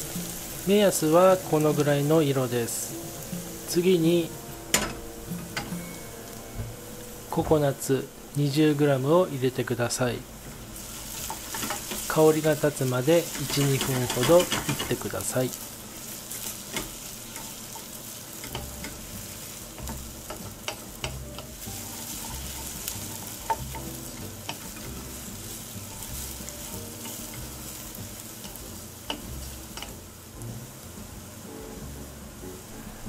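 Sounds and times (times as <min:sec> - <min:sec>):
light sizzle: 0:00.0 - 0:33.0
spatula scraping a pan: 0:10.8 - 0:12.2, 0:13.1 - 0:15.2, 0:15.8 - 0:30.0
spatula clicking against pan: 0:28.4 - 0:30.0.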